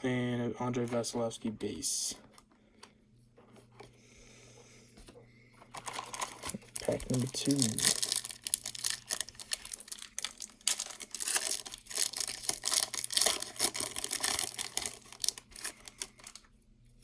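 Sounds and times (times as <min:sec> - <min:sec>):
wrapper tearing and crinkling: 0:05.8 - 0:16.4.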